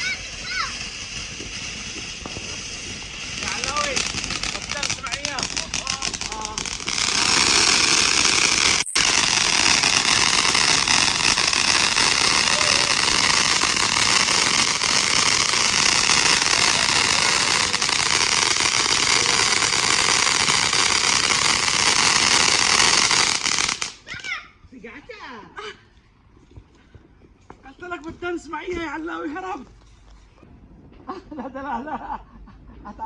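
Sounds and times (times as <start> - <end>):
fountain firework hissing: 0.0 - 24.0.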